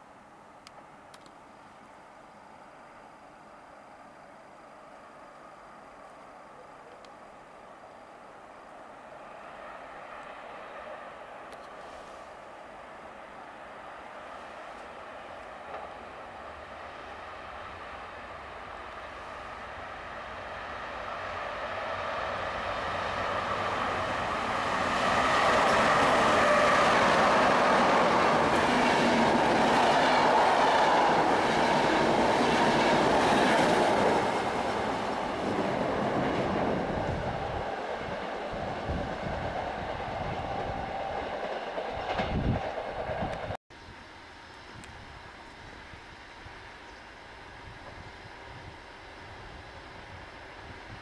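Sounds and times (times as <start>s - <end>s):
train wheels rushing on rails: 8.2s - 43.6s.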